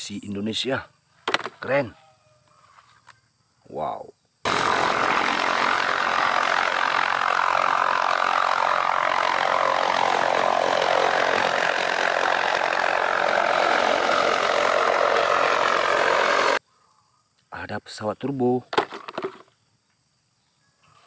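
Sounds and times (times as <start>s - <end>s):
helicopter rotor and turbine: 4.4s - 16.6s.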